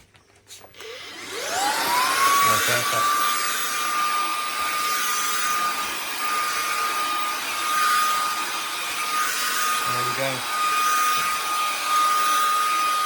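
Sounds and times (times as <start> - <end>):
vacuum cleaner running: 0.5 - 13.0.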